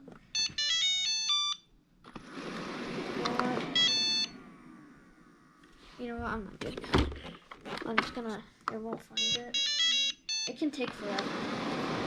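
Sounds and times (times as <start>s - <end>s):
robot vacuum beeping melody: 0.4s - 1.7s, 3.5s - 4.4s, 9.2s - 10.6s
robot vacuum motor rushing: 2.2s - 5.9s, 11.0s - 12.0s.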